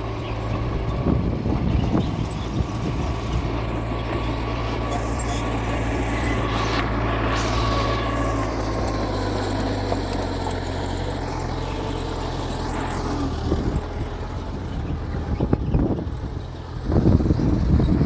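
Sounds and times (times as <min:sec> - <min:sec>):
bulldozer diesel engine running: 0:00.0 - 0:18.0.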